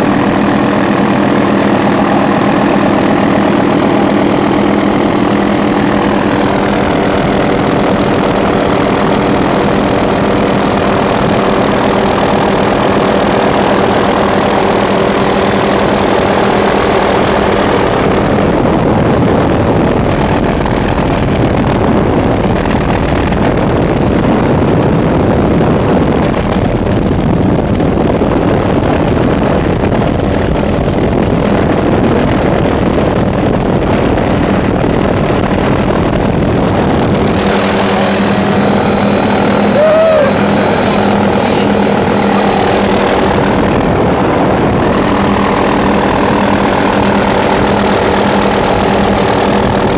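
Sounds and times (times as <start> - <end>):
engine drone: 0.0 - 49.9
loud rushing noise: 35.1 - 49.9.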